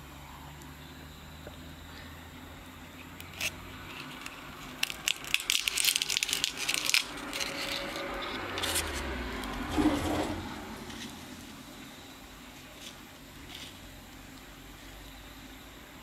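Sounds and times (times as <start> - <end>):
paper nest crackling: 3.2 - 10.0
knife scraping: 6.6 - 9.0.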